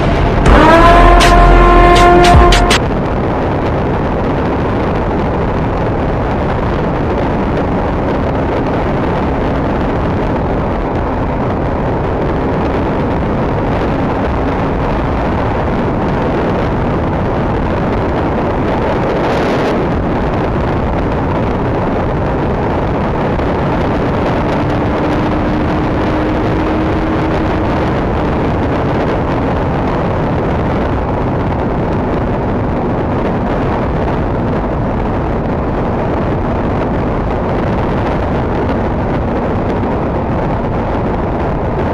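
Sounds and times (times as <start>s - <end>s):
motorcycle engine running: 0.0s - 2.8s, 21.5s - 31.1s
wind rush over microphone: 0.0s - 41.9s.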